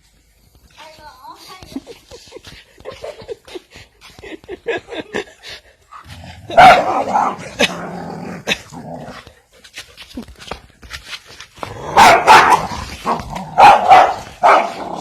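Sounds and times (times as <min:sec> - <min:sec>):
dog growling and barking: 0:06.0 - 0:09.4, 0:11.6 - 0:15.0.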